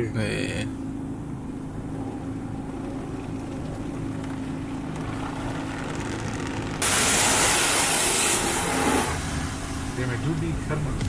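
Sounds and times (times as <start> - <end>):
low droning hum: 0.0 - 11.0
water spray hiss: 6.8 - 9.8.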